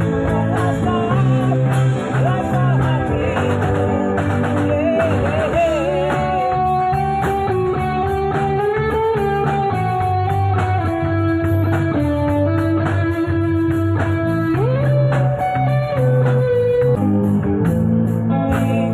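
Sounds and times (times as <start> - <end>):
bass guitar: 0.0 - 18.9
electric guitar lead notes: 0.0 - 18.9
steady drum beat: 0.0 - 18.9.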